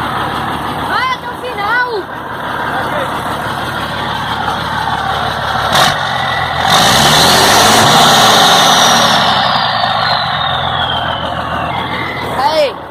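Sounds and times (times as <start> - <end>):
diesel truck engine revving: 0.0 - 12.9.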